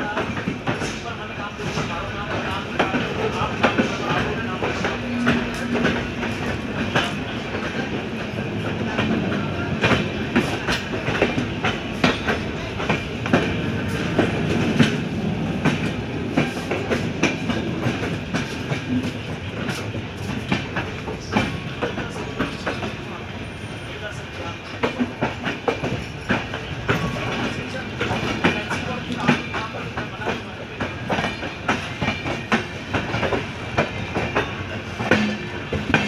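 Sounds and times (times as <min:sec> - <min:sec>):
train coaches rumbling past: 0:00.0 - 0:36.0
wheels clacking over rail joints: 0:24.6 - 0:36.0.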